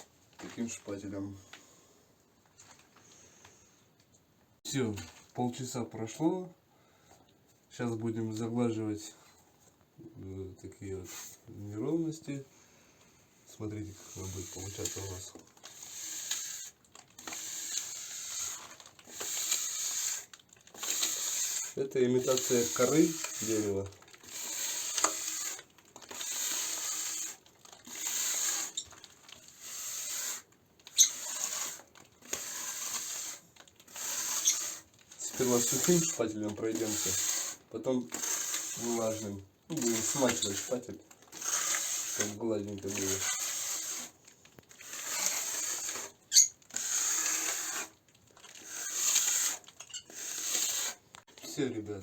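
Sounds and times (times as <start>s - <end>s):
spatula scraping plaster: 13.6s - 52.0s.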